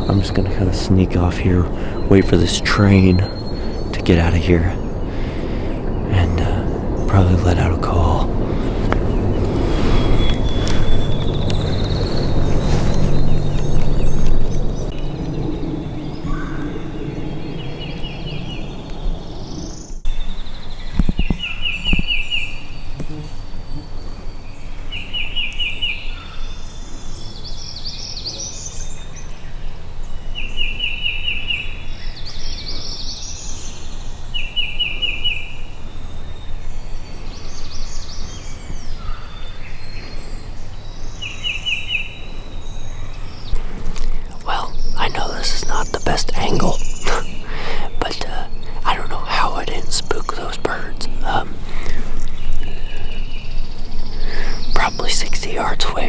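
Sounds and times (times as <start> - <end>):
low train rumble: 0.0 - 20.1, 31.6 - 56.0
high bird chirps: 0.0 - 22.9, 30.4 - 56.0
bird trill: 0.0 - 56.0.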